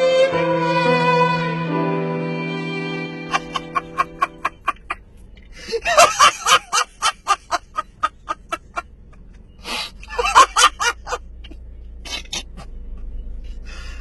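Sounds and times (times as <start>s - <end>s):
held music chord: 0.0s - 4.6s
rapid laughter: 3.3s - 5.0s, 5.6s - 9.3s, 9.9s - 11.2s.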